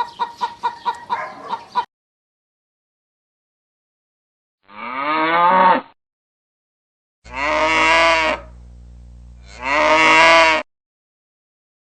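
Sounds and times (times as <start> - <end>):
cattle mooing: 4.7 - 5.9, 7.3 - 8.5, 9.4 - 10.6
faint steady hum: 7.3 - 9.8.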